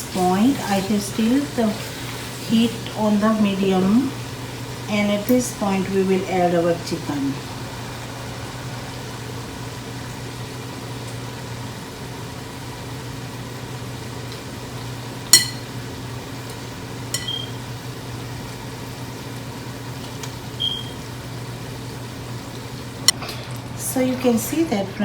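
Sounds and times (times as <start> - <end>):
metal utensils clinking on a pot: 15.4 - 15.7, 17.1 - 17.5.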